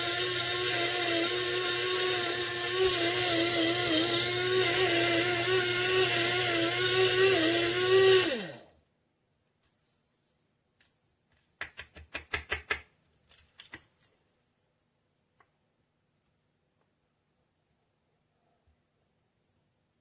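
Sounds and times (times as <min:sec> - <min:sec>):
spice grinder motor whining: 0:00.0 - 0:08.7.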